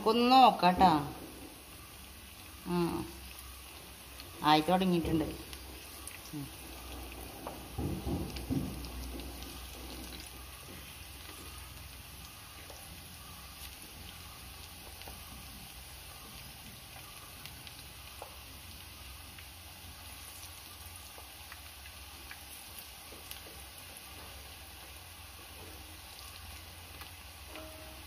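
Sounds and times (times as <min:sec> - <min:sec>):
fritters sizzling in oil: 0:00.0 - 0:28.0
wooden spatula in pan: 0:04.9 - 0:18.7, 0:21.1 - 0:28.0.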